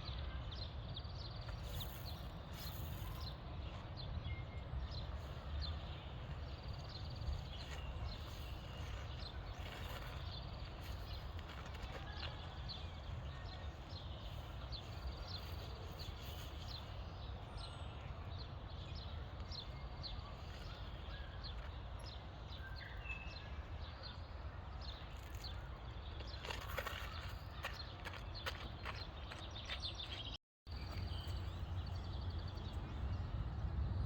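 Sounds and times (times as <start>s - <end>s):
footsteps walking: 26.2s - 30.3s
wind rumble on microphone: 30.7s - 34.0s.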